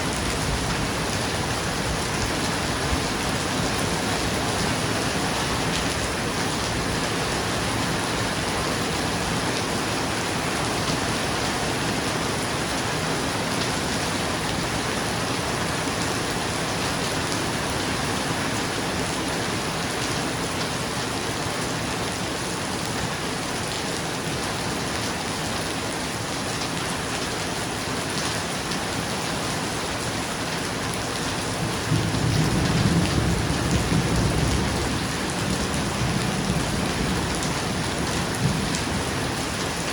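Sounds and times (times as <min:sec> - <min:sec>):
rain falling on a roof: 0:00.0 - 0:39.9
low roll of thunder: 0:31.7 - 0:39.1.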